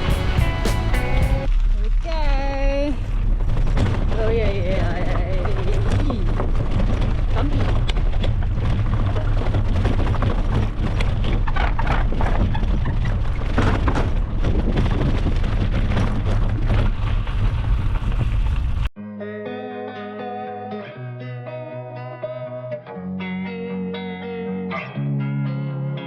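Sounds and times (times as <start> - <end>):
wind buffeting microphone: 2.5 - 18.9.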